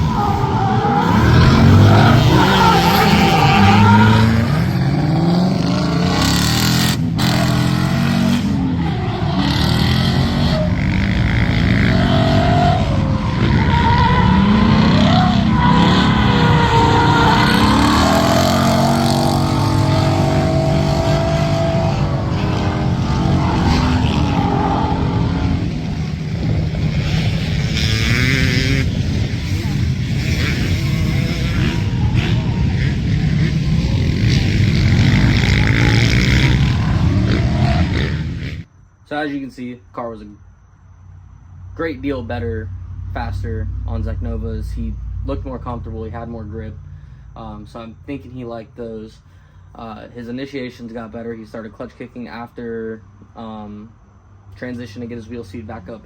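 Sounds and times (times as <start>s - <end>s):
car engine revving: 0.0s - 38.7s
tyres squealing and skidding: 0.0s - 38.7s.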